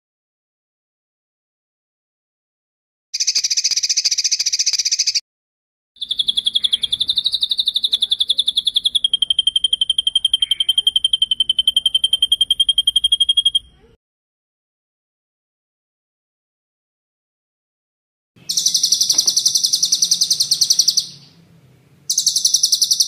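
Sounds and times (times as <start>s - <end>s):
songbird rolling trills: 6.0s - 13.7s, 18.4s - 23.0s.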